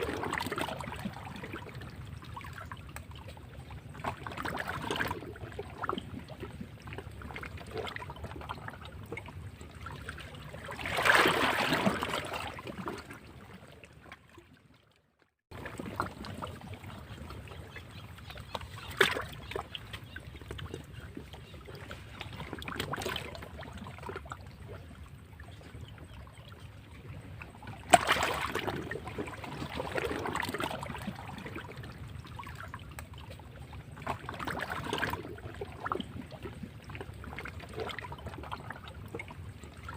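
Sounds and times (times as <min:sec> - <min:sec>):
wave breaking: 0:10.7 - 0:12.6.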